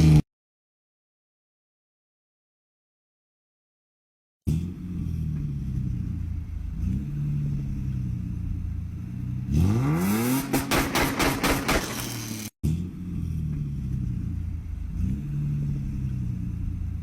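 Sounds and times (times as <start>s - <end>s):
car engine idling and revving: 0.0s - 0.2s, 4.5s - 17.0s
exhaust cracks: 5.3s - 12.5s.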